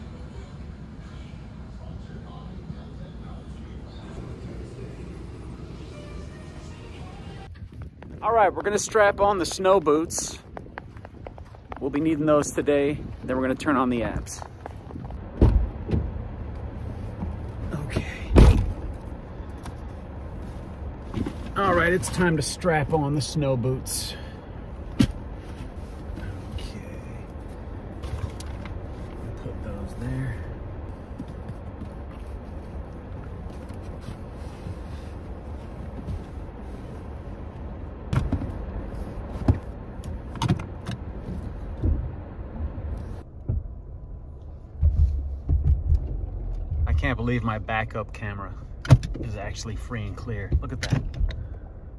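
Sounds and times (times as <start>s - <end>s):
steady low hum: 0.0s - 13.4s
thumps and handling inside car: 14.0s - 23.4s, 24.8s - 47.5s, 48.8s - 51.6s
loud thud: 15.4s - 16.1s, 18.3s - 18.8s
knocks and clicks in car: 38.1s - 38.6s, 39.4s - 42.2s, 43.4s - 43.8s, 44.7s - 47.1s.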